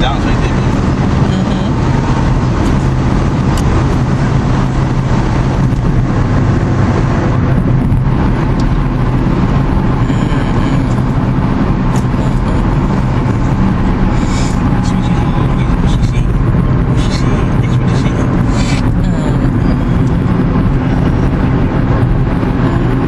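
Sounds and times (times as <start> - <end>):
car road noise from cabin: 0.0 - 23.0.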